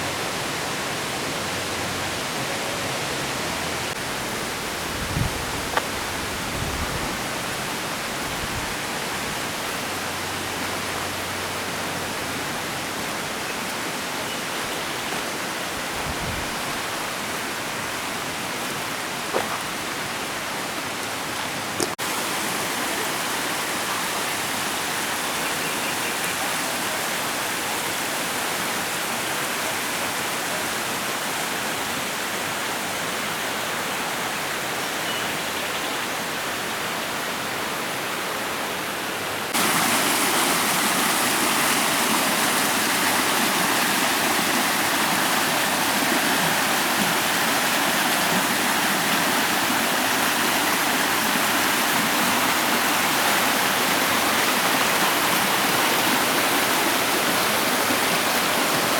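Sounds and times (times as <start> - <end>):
waterfall rushing: 38.5 - 58.9.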